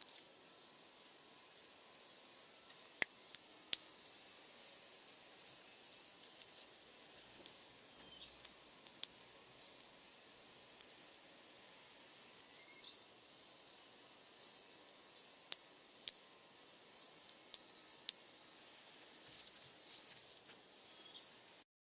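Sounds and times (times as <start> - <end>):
bonfire crackling and popping: 5.1 - 11.3.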